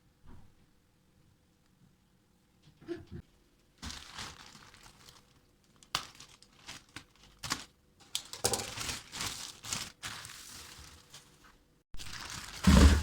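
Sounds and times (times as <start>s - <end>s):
plastic packaging crinkling: 3.8s - 13.0s.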